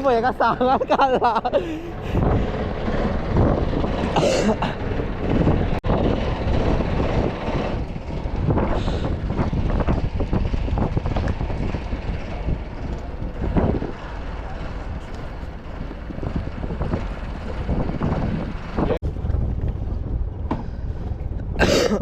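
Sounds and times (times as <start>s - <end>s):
boat engine running: 0.0s - 21.6s
wind buffeting microphone: 0.0s - 22.0s.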